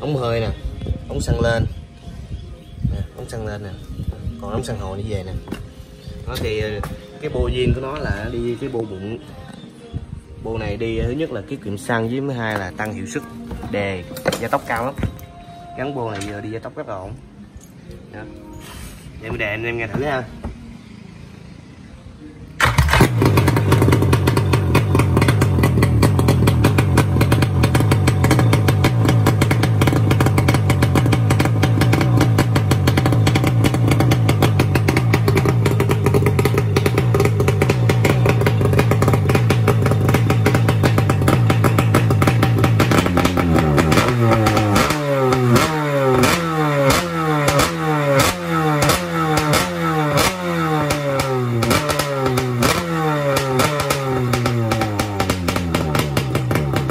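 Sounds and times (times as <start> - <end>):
engine revving: 22.5 - 56.9
engine starter: 22.6 - 45.0
two-stroke engine idling: 22.6 - 56.9.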